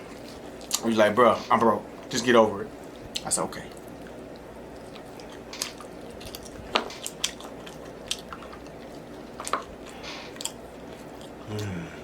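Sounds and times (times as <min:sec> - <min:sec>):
wet chewing and lip-smacking: 0:00.1 - 0:00.9, 0:02.8 - 0:11.7.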